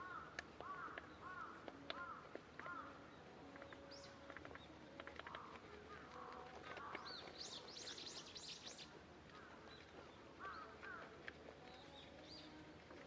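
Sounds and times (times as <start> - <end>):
wild birds calling: 0.0 - 3.0, 5.2 - 11.1.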